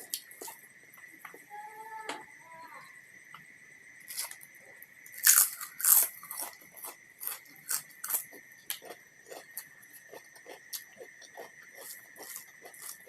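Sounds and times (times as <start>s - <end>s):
person chewing crisp food: 0.0s - 0.6s, 4.1s - 4.4s, 5.1s - 13.0s.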